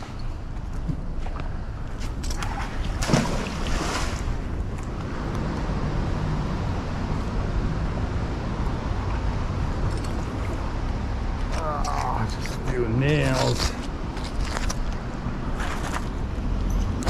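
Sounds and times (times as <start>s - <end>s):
creek water rushing: 2.7s - 4.6s.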